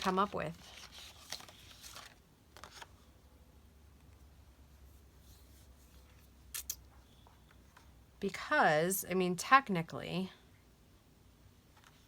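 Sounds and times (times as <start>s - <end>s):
paper sheets rustling: 0.0s - 3.0s.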